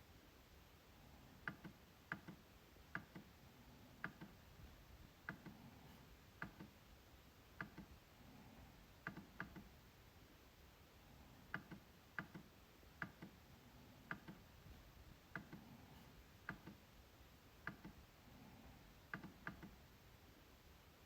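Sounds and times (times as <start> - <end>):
trackpad clicks: 1.4 - 3.3, 4.0 - 4.4, 6.4 - 6.8, 7.6 - 7.9, 9.0 - 9.7, 11.5 - 13.4, 14.0 - 14.5, 15.3 - 15.6, 16.4 - 16.8, 17.6 - 18.0, 19.1 - 19.8.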